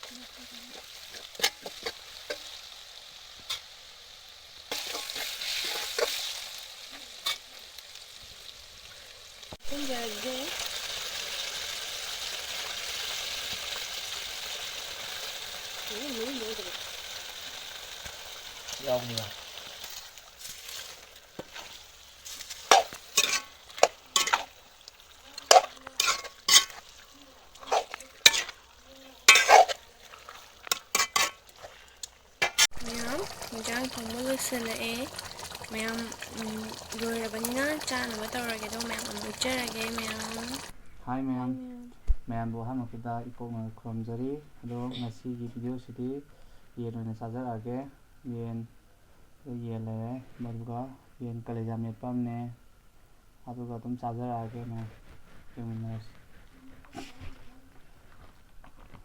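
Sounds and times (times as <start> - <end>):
chicken sizzling in a pan: 0.0 - 40.8.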